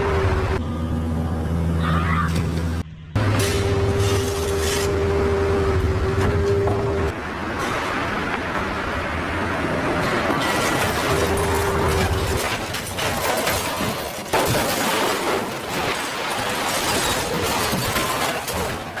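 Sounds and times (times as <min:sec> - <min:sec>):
crashing and clattering: 0:10.0 - 0:19.0.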